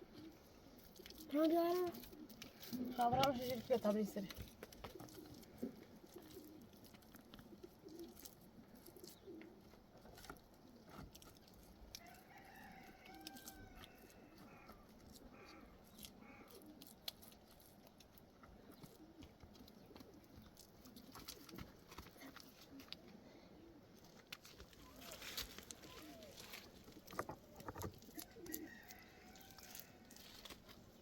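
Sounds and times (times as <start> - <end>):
rooster crowing faintly: 11.9 - 14.8
small clicks and knocks: 26.8 - 28.6.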